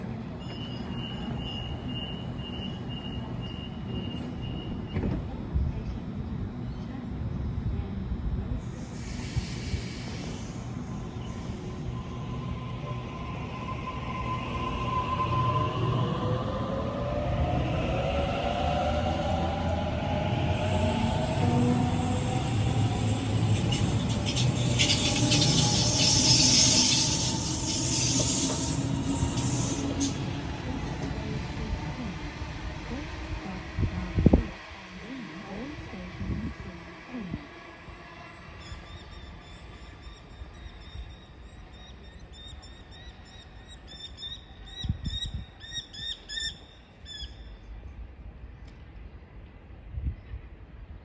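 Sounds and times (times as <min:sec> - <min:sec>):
train wheels on rails: 0:17.0 - 0:40.5.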